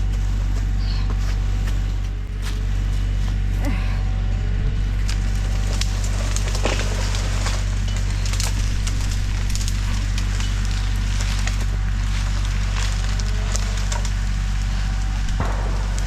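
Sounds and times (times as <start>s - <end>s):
tractor engine running: 0.0s - 16.0s
wood and brush crackling: 0.0s - 16.0s
loud wood crack: 4.9s - 16.0s.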